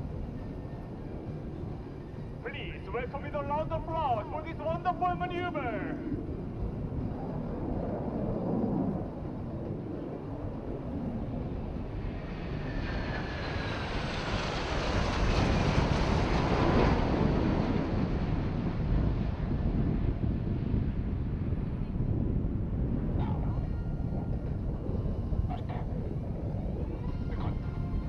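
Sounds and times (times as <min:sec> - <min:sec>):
wind on microphone: 0:00.0 - 0:28.0
jet engine rushing: 0:02.4 - 0:20.8.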